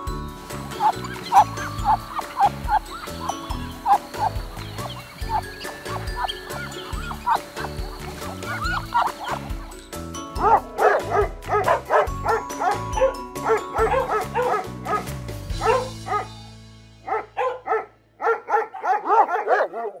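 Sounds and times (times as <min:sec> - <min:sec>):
background music with low beat: 0:00.0 - 0:19.4
dog barking: 0:10.4 - 0:16.3, 0:17.0 - 0:20.0.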